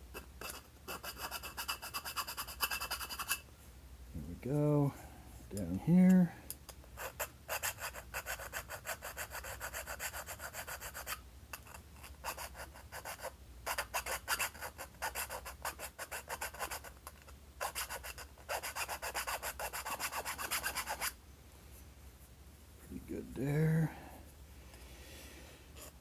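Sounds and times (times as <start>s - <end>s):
needle file rasping on metal: 0.2s - 3.4s, 7.0s - 21.2s.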